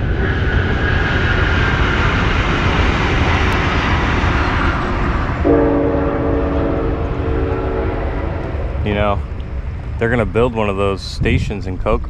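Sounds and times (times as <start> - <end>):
train rumble and rush: 0.0 - 12.0
train horn chord: 5.4 - 9.2.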